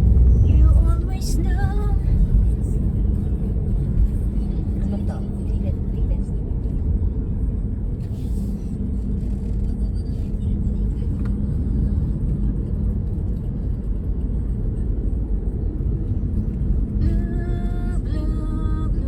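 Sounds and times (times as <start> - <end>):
road vehicle rumble: 0.0 - 19.0.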